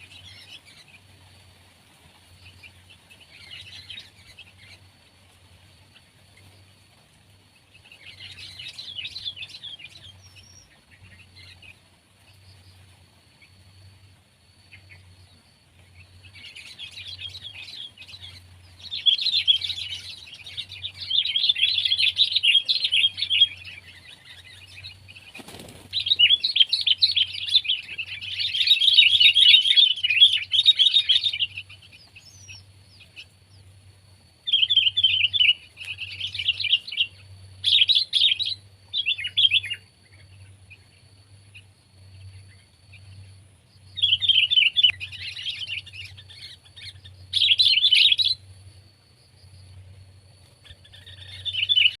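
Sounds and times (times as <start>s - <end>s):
bulbul chattering and twittering: 0.0s - 52.0s.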